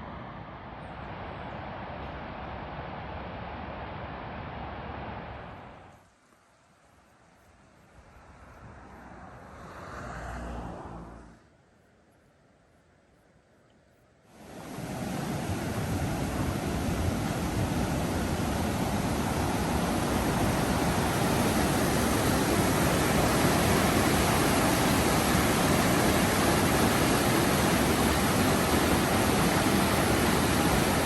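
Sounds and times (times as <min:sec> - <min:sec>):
waterfall roaring: 0:14.4 - 0:31.0.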